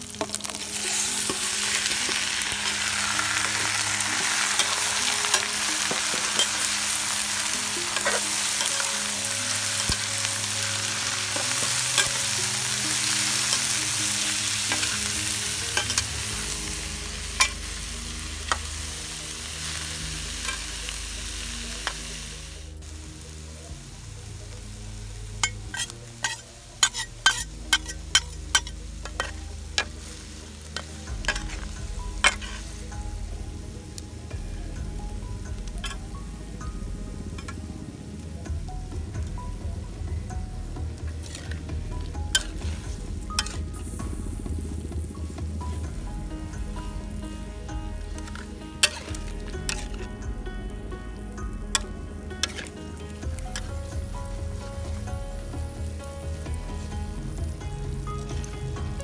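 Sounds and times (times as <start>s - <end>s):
eel sizzling in a wok: 0.0s - 36.5s, 41.0s - 59.0s
spatula stirring: 25.7s - 30.0s, 48.1s - 50.0s, 51.7s - 53.9s.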